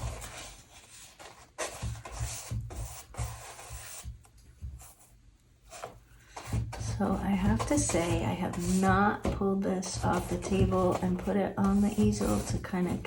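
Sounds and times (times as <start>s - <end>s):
paper rubbing and rustling: 0.0s - 6.8s.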